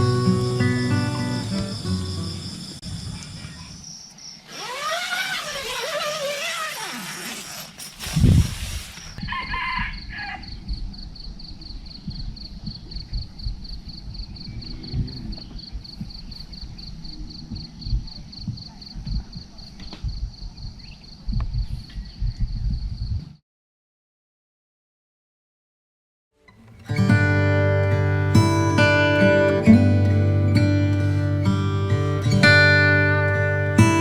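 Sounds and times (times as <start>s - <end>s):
insect trilling: 0.0s - 9.2s
wind thumping microphone: 8.0s - 9.3s, 10.5s - 23.4s
rooster crowing: 9.2s - 10.6s.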